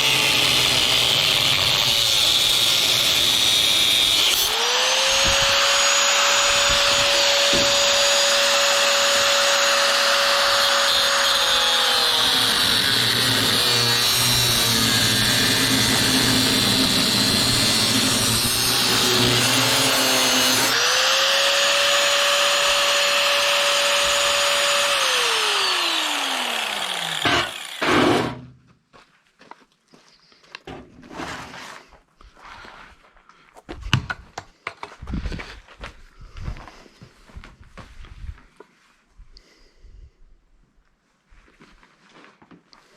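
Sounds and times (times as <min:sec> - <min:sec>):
electric power tool whining: 0:00.0 - 0:28.4.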